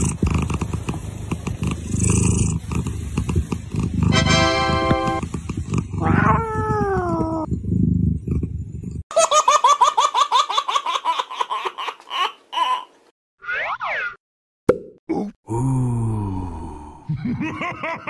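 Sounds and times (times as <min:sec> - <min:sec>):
cat purring: 0:00.0 - 0:04.2, 0:05.1 - 0:09.0.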